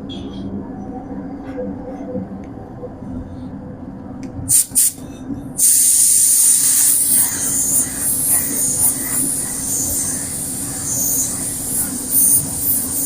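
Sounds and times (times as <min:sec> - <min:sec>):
steady low hum: 0:00.0 - 0:13.0
spray gun air hiss: 0:04.5 - 0:05.0, 0:05.6 - 0:13.0.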